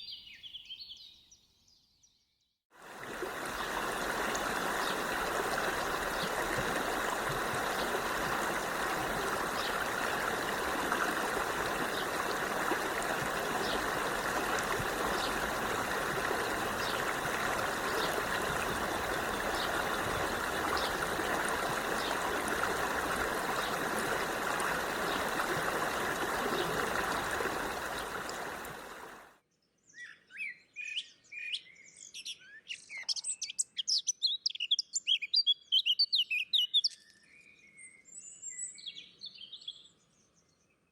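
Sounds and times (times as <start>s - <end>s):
stream running: 2.8s - 29.3s
birds chirping: 3.0s - 29.2s.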